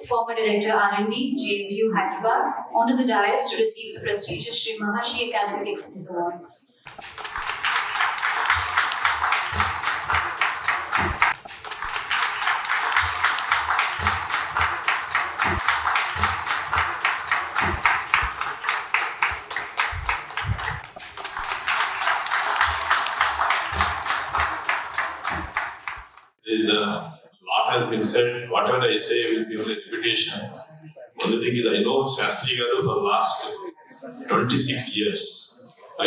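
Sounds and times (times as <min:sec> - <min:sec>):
audience applauding: 0:06.9 - 0:26.3.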